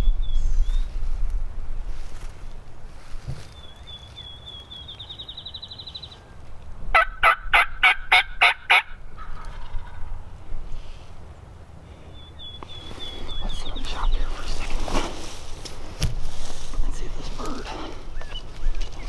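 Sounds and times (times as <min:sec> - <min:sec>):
turkey gobbling: 0:06.9 - 0:10.3.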